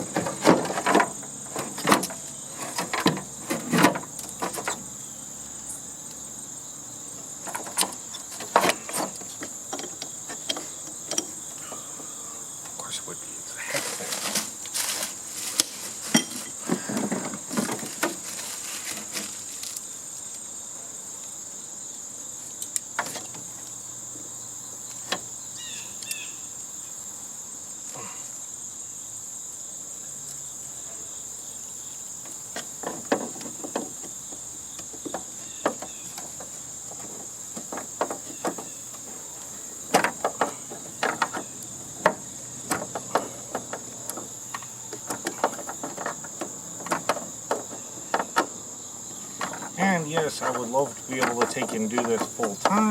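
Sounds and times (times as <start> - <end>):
hand tools clanking on metal casing: 0.0 - 4.9, 7.4 - 19.5, 32.5 - 52.9
crickets chirping: 0.0 - 52.9.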